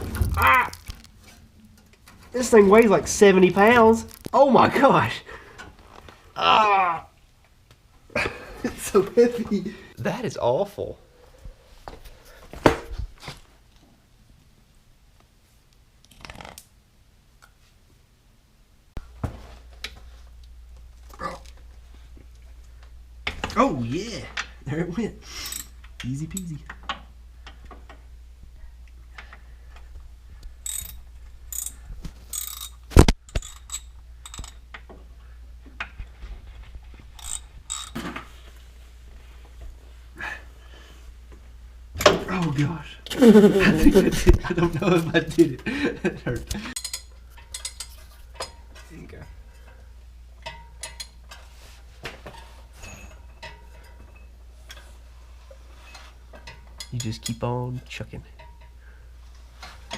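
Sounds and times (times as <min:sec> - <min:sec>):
steady low hum: 0:18.1 - 0:59.9
metal tools clinking: 0:25.4 - 0:26.5, 0:30.6 - 0:34.7, 0:37.2 - 0:38.2, 0:46.7 - 0:49.8, 0:50.4 - 0:51.5, 0:52.3 - 0:55.0, 0:55.8 - 0:57.5
ratchet wrench clicking: 0:30.6 - 0:34.6, 0:37.2 - 0:38.0.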